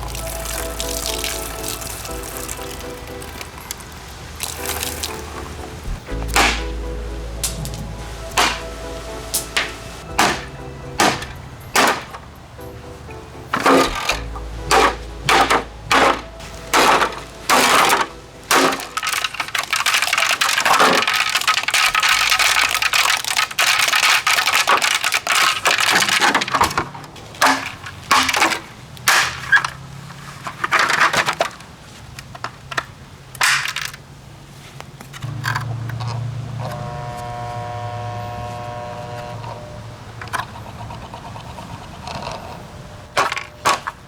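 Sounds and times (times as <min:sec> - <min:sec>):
plastic housing being smashed: 0:05.8 - 0:06.8, 0:07.4 - 0:08.7, 0:09.4 - 0:12.2, 0:13.5 - 0:29.8, 0:32.4 - 0:34.0, 0:43.1 - 0:44.0.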